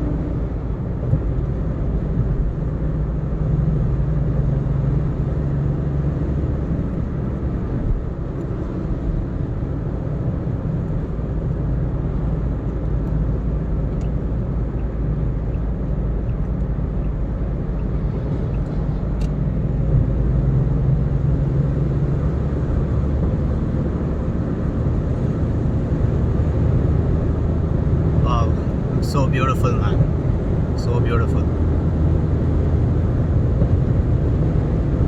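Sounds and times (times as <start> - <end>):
car road and engine noise: 0.0 - 35.0.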